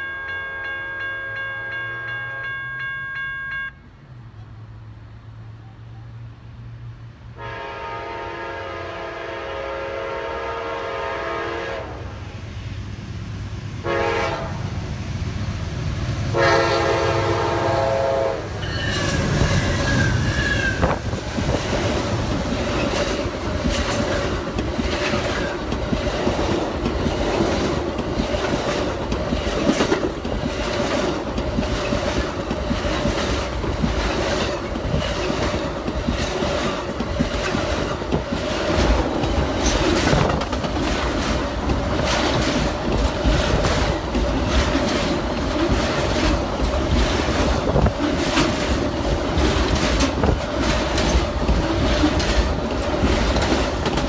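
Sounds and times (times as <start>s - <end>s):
locomotive horn blasts: 0.0s - 3.9s, 7.4s - 12.1s, 13.8s - 14.6s, 16.3s - 19.1s
train wheels clicking over rail joints: 18.4s - 54.0s.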